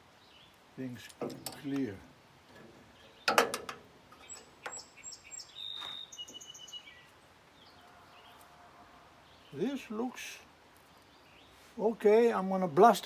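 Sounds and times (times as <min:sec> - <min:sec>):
songbird chirping: 0:00.0 - 0:12.8
metal parts clicking and clanking: 0:01.0 - 0:04.8.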